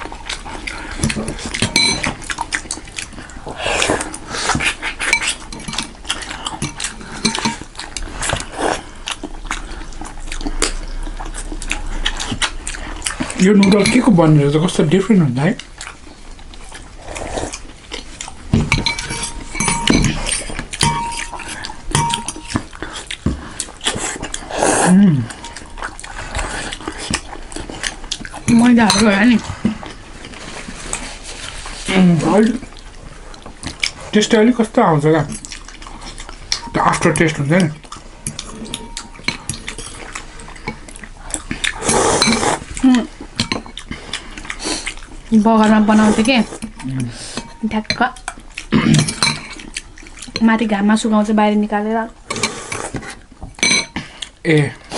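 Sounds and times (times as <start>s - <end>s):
utensils clinking against bowl: 0.0s - 2.4s, 5.0s - 8.4s, 13.2s - 14.4s, 18.6s - 22.8s, 28.2s - 29.8s, 36.1s - 40.9s, 41.8s - 42.7s, 43.4s - 44.0s, 45.5s - 50.6s, 52.3s - 54.1s
slurping and chewing: 0.0s - 50.7s, 52.2s - 54.9s.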